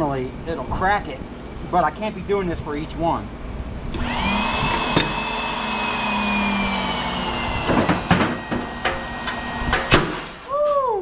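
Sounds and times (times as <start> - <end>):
machine whine with squealing: 3.9 - 10.0.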